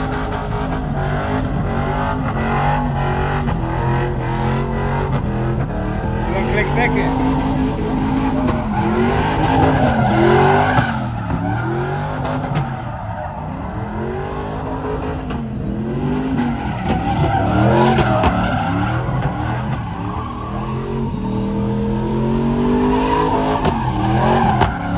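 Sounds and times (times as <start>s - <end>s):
truck engine revving: 0.0s - 24.9s
tyres squealing and skidding: 0.0s - 24.9s.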